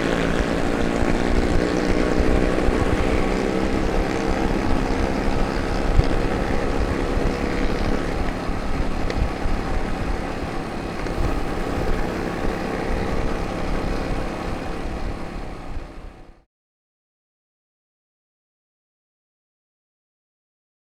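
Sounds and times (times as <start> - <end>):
low traffic rumble: 0.0 - 16.4
motorcycle engine running: 0.0 - 16.4.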